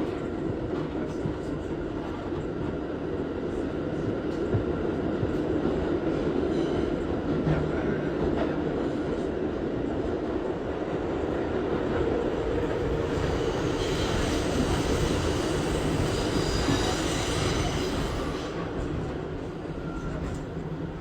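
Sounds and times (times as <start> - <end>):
train wheels rumbling on rail: 0.0 - 21.0
high-pitched wheel squeal: 13.7 - 18.5.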